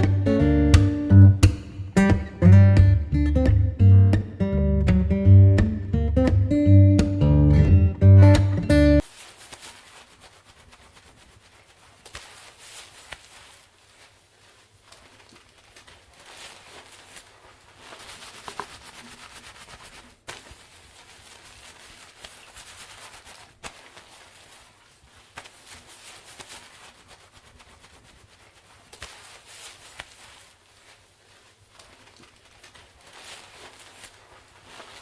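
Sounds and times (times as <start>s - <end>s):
wet hair swishing: 9.0s - 35.0s.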